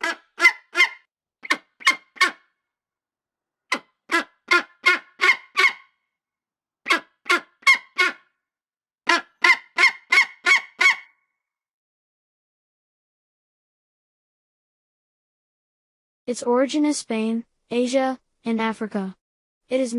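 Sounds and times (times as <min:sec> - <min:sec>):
bird harsh calls: 0:00.0 - 0:02.5, 0:03.7 - 0:06.0, 0:06.9 - 0:08.3, 0:09.1 - 0:11.2.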